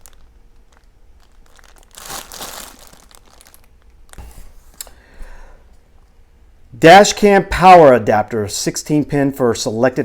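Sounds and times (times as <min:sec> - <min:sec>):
packaging crinkling and rustling: 0:00.0 - 0:04.8.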